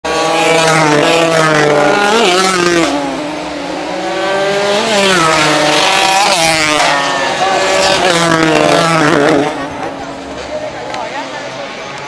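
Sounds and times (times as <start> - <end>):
racing motorcycle engines revving: 0.0 - 12.0.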